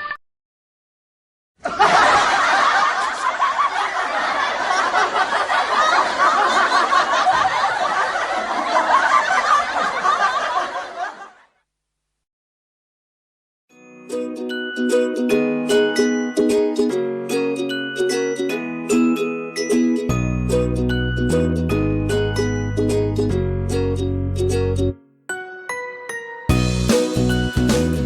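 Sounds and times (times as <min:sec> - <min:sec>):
crowd laughing: 0:01.6 - 0:11.5.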